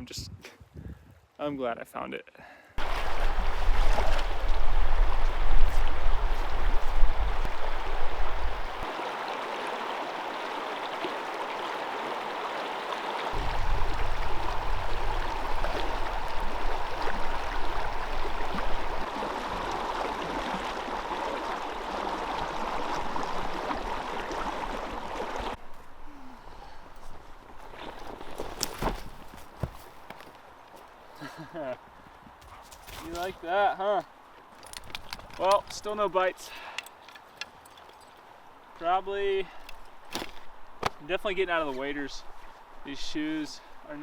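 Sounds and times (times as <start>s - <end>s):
wind rumble on microphone: 2.8s - 8.9s, 13.4s - 19.7s
river water rushing: 2.8s - 25.6s.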